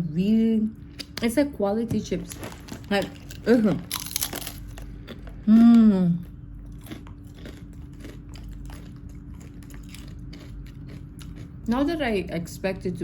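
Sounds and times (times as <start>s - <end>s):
chewing crispy chips: 2.0s - 11.9s.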